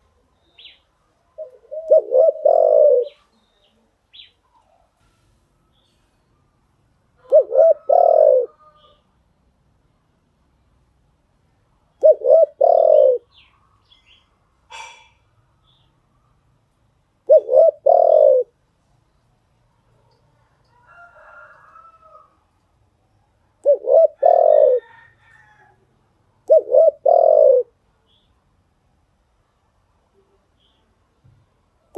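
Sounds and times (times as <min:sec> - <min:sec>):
dove cooing: 0:01.4 - 0:03.2, 0:07.2 - 0:09.0, 0:12.0 - 0:13.3, 0:17.3 - 0:18.6, 0:23.6 - 0:25.0, 0:26.4 - 0:27.8.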